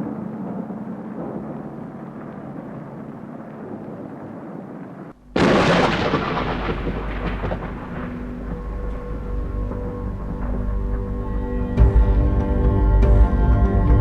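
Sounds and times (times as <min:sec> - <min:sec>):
thunder rumbling: 0:00.0 - 0:14.0
loud thunderclap: 0:02.2 - 0:11.1.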